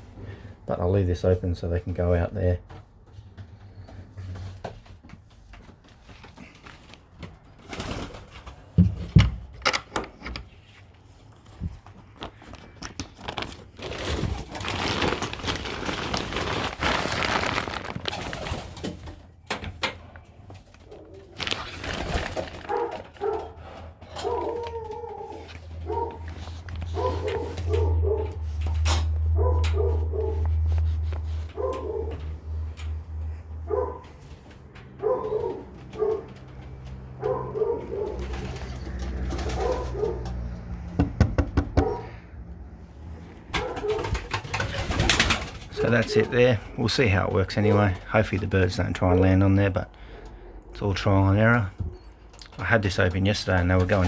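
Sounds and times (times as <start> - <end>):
pigeons cooing: 20.8 - 22.9, 37.3 - 40.3.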